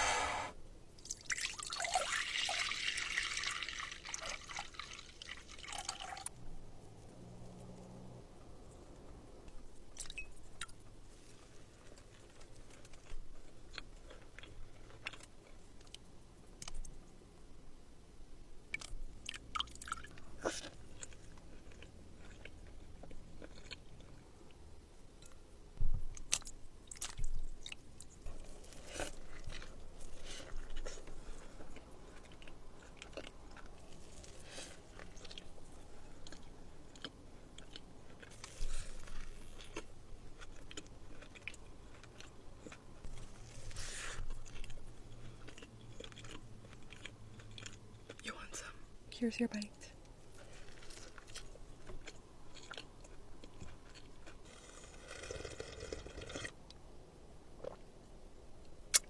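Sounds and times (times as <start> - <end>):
person chewing crunchy food: 11.4 - 16.9, 18.8 - 24.6, 26.1 - 48.2, 50.3 - 56.6.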